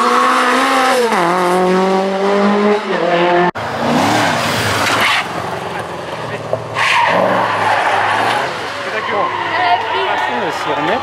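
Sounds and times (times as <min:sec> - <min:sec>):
rally car engine revving: 0:00.0 - 0:11.0
road noise: 0:00.0 - 0:11.0.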